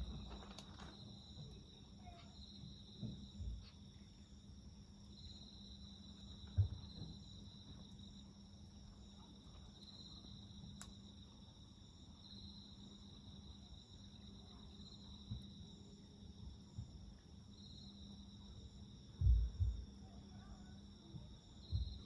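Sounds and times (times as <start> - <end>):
wood fire crackling: 0.0 - 11.4
insects trilling: 0.0 - 22.0
low thump: 19.2 - 19.8, 21.7 - 22.0.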